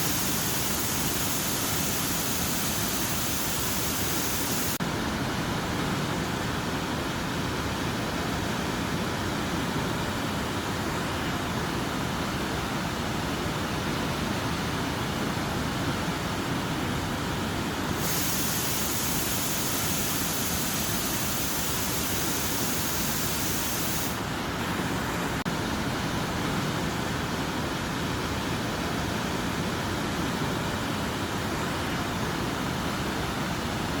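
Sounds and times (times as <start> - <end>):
steady rain: 0.0 - 4.8, 17.8 - 24.6.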